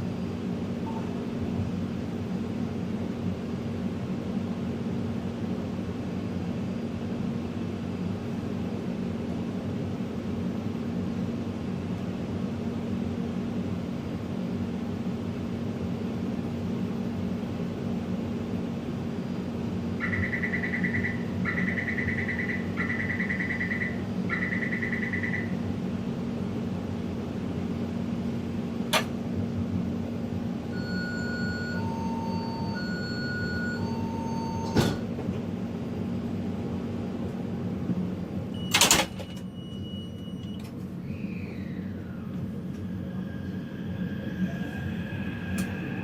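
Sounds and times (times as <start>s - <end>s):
train car rumble: 0.0s - 46.0s.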